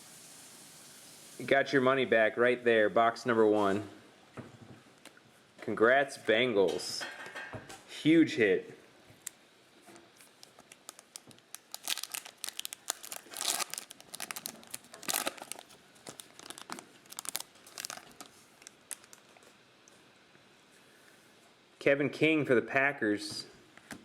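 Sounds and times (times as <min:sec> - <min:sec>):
foil wrapper crinkling and tearing: 0:10.2 - 0:19.6.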